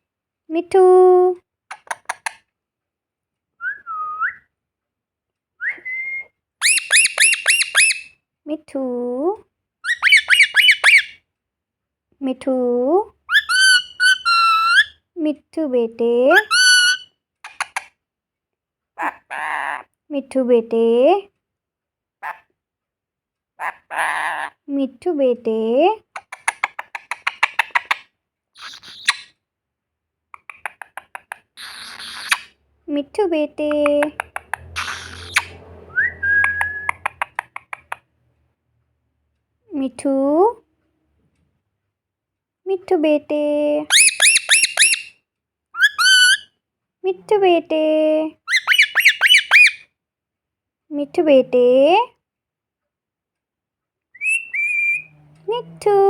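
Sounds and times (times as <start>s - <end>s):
parrot whistled notes: 5.6s - 8.1s, 43.9s - 45.1s, 48.5s - 49.8s, 54.2s - 55.1s
parrot sharp chirps: 6.6s - 8.1s, 9.8s - 11.2s, 13.3s - 15.0s, 16.4s - 17.8s, 28.6s - 29.3s, 31.6s - 32.5s, 34.2s - 37.9s, 43.9s - 45.1s, 45.8s - 46.5s, 48.5s - 49.8s, 54.2s - 55.1s
parrot raspy sound: 19.0s - 20.0s, 22.2s - 22.5s, 23.6s - 24.6s, 28.6s - 29.3s, 30.4s - 32.6s, 33.8s - 35.6s, 43.9s - 45.1s, 48.5s - 49.8s, 54.2s - 55.5s.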